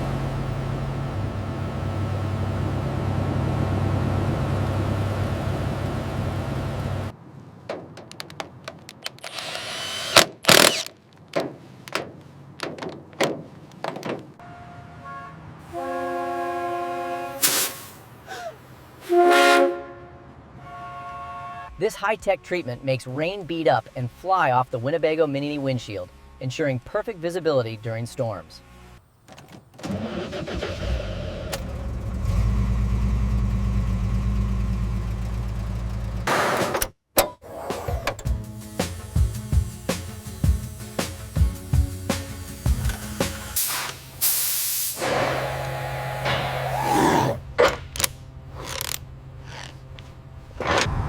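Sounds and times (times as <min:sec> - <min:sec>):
vehicle engine idling: 0:00.0 - 0:07.1, 0:31.6 - 0:36.3
sharp knocks and clicks: 0:07.7 - 0:09.3, 0:10.2 - 0:14.3
horn tone chord: 0:14.4 - 0:17.5, 0:19.0 - 0:21.8.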